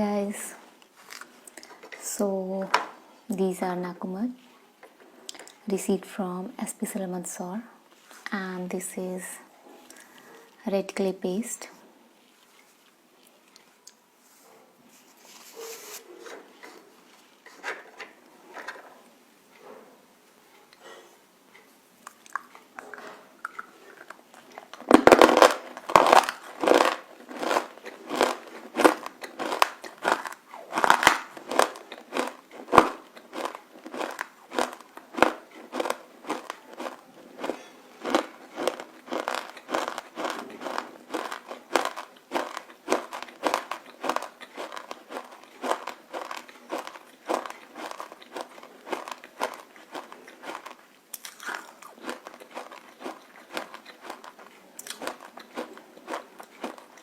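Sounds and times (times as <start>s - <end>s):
crunchy biting and chewing: 22.0s - 57.0s.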